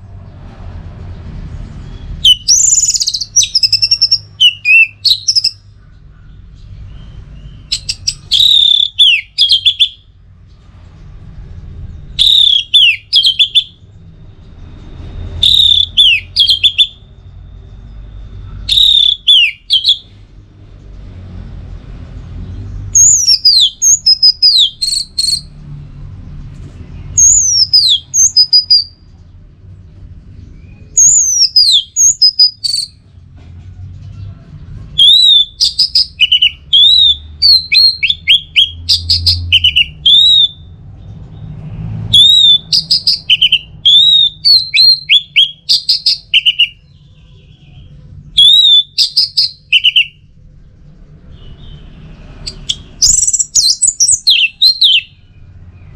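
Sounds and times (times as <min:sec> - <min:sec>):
thrush singing whistled notes: 0:01.8 - 0:05.7, 0:06.8 - 0:10.1, 0:11.8 - 0:20.2, 0:22.9 - 0:25.6, 0:27.1 - 0:29.1, 0:30.5 - 0:33.0, 0:35.0 - 0:50.3, 0:51.3 - 0:55.9.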